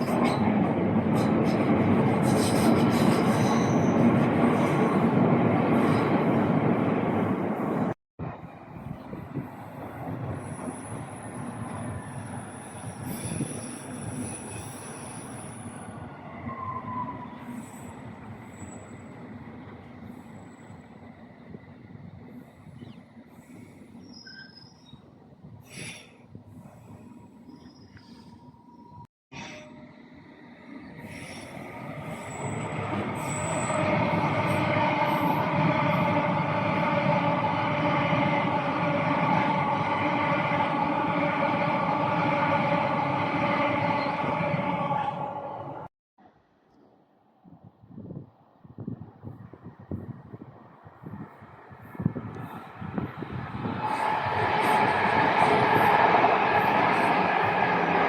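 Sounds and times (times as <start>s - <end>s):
train rumbling on rails: 0.0s - 45.9s, 48.0s - 58.0s
high wheel squeal: 2.2s - 4.1s, 24.0s - 25.0s, 31.0s - 36.1s.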